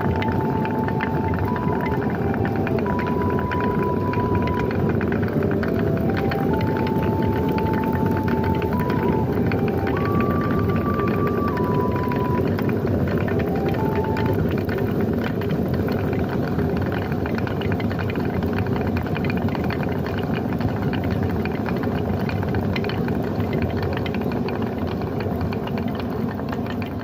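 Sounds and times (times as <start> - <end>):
rushing water: 0.0 - 27.0
water mill rattling: 0.0 - 27.0.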